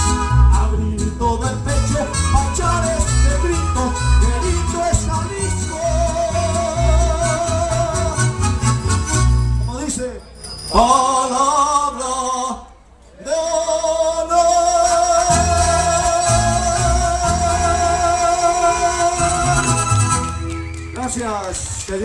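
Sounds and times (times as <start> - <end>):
band playing backing music: 0.0 - 9.7, 15.3 - 21.0
bass notes: 0.0 - 9.8, 15.2 - 21.0
person singing: 13.3 - 19.9.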